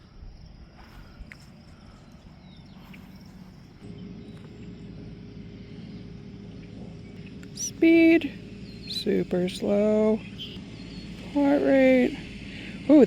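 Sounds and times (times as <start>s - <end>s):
insects singing: 0.0s - 13.0s
low steady hum: 0.0s - 13.0s
faint footstep clicks: 0.8s - 4.7s.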